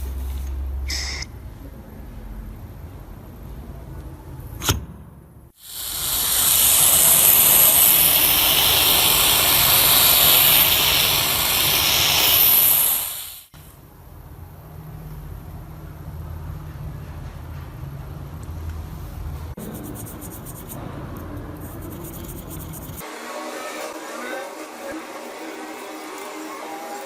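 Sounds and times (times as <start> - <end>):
pressurised air hissing from nozzle: 5.6 - 13.5.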